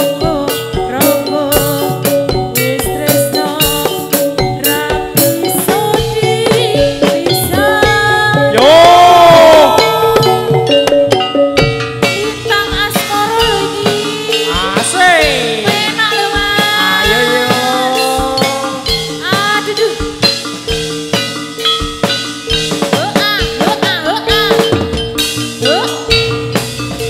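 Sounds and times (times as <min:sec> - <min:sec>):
person singing: 0:00.0 - 0:10.8, 0:12.2 - 0:20.1
drum strokes: 0:00.0 - 0:27.0.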